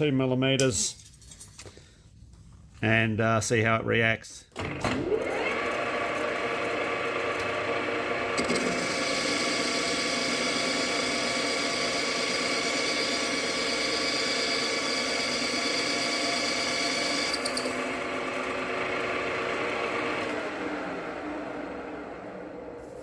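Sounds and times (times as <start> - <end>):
lathe machine whine: 5.1 - 23.0
lathe tool cutting steel: 5.2 - 20.4.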